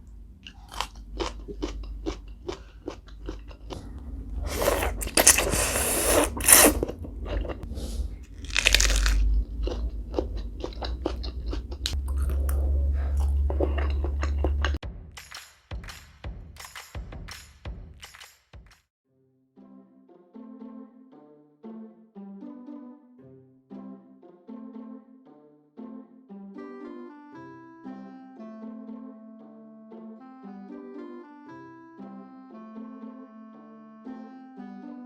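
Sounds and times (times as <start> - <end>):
steady low hum: 0.0 - 14.8
wet chewing clicks: 0.4 - 14.8.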